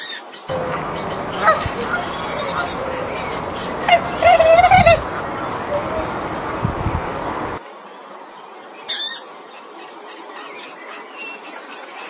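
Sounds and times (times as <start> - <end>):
bird squawk: 0.5 - 7.6
faint bird chirps: 0.5 - 7.6.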